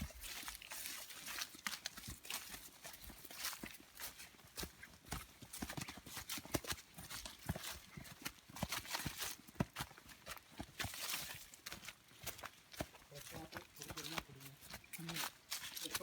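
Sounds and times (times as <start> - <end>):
footsteps on forest path: 0.0 - 16.0.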